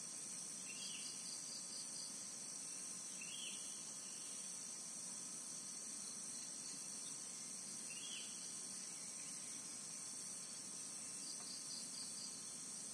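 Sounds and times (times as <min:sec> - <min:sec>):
crickets chorus: 0:00.0 - 0:12.9.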